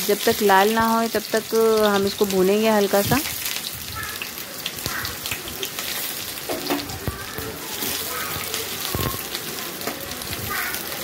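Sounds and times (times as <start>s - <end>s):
onion sizzling in hot oil: 0.0s - 11.0s
spatula scraping and tapping pan: 4.9s - 7.2s.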